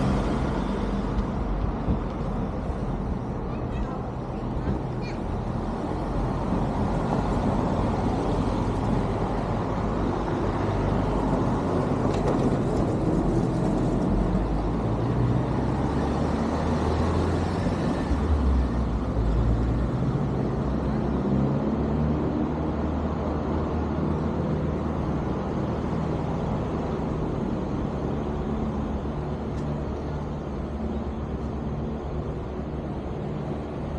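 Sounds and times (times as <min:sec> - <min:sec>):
wind and road rush: 0:00.0 - 0:33.9.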